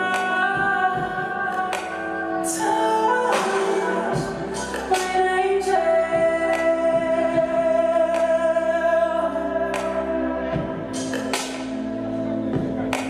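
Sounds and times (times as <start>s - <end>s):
sustained chords: 0.0s - 13.0s
steady low bass: 3.9s - 13.0s.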